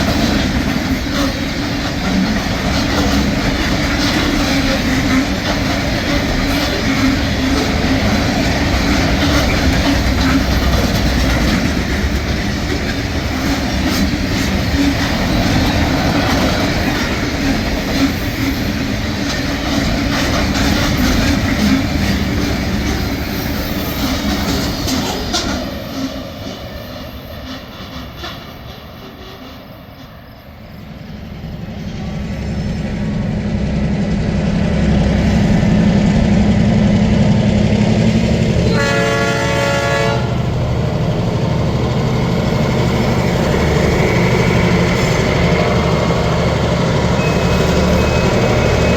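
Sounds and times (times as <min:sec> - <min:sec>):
locomotive engine hum: 0:00.0 - 0:24.7, 0:31.2 - 0:48.9
train wheels clicking over rail joints: 0:00.0 - 0:30.4.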